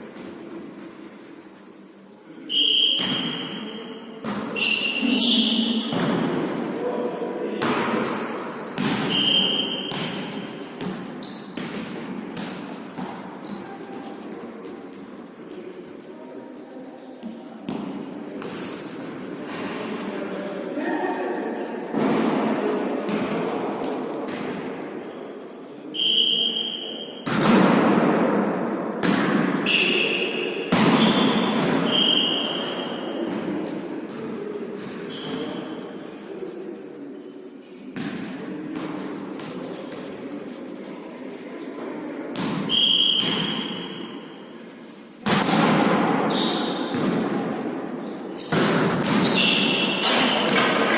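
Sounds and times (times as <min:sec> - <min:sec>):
volleyball thuds in a hall: 0:00.0 - 0:50.9
shoe squeaks: 0:02.5 - 0:05.9, 0:07.8 - 0:09.9, 0:11.2 - 0:11.6, 0:35.1 - 0:35.8, 0:46.3 - 0:46.9, 0:49.2 - 0:50.5.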